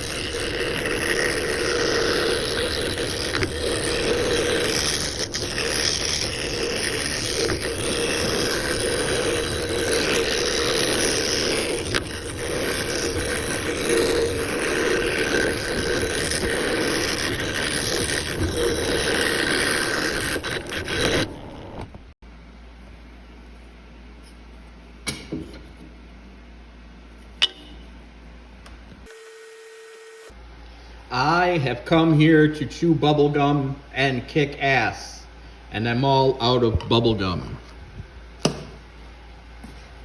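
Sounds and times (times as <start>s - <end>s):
power tool scraping wood: 0.0s - 22.1s.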